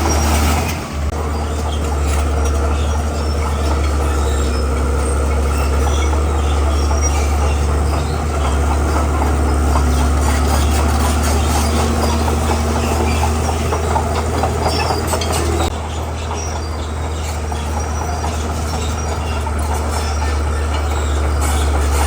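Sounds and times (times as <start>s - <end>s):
bulldozer diesel engine drone: 0.0s - 22.0s
crawler tracks clanking and squealing: 0.0s - 22.0s.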